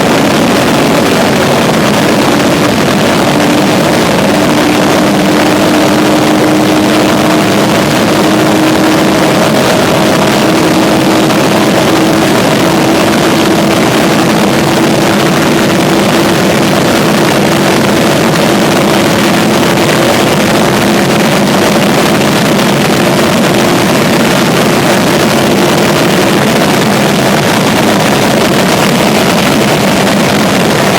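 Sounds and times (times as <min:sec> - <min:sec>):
car engine revving high: 0:00.0 - 0:30.9
wind and road rush: 0:00.0 - 0:30.9.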